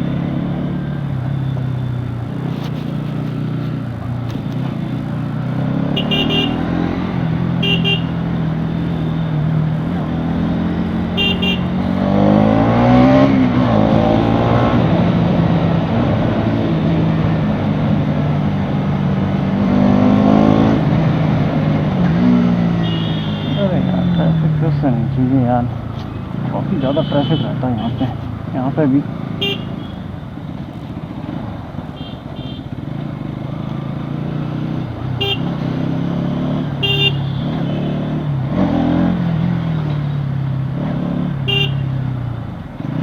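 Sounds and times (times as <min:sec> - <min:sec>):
motorcycle engine running: 0:00.0 - 0:12.6, 0:24.9 - 0:36.1
vehicle horn beeps: 0:05.9 - 0:06.8, 0:07.6 - 0:08.2, 0:11.1 - 0:11.8, 0:22.8 - 0:24.4, 0:26.8 - 0:28.1, 0:29.4 - 0:30.1, 0:32.0 - 0:32.7, 0:35.2 - 0:35.5, 0:36.8 - 0:37.9, 0:41.5 - 0:42.0.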